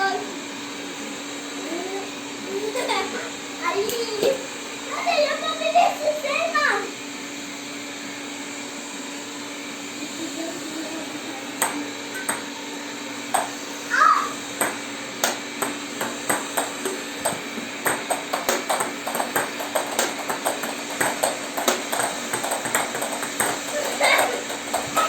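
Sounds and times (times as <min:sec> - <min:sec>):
steady low hum: 0:10.4 - 0:25.0.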